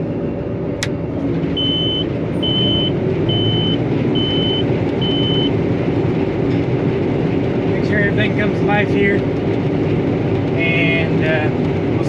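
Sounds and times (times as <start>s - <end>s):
combine harvester running: 0.0s - 12.0s
high-pitched alarm beeps: 1.6s - 5.5s.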